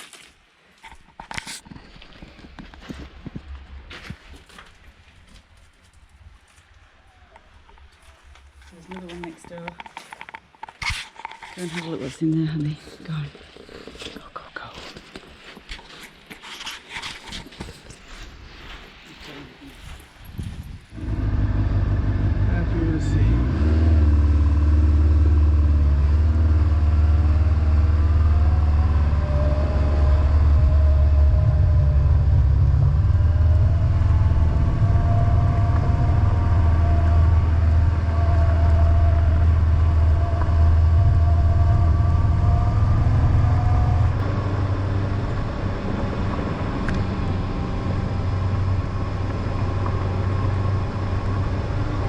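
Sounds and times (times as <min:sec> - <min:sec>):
motorcycle engine rumbling: 0:20.5 - 0:52.0.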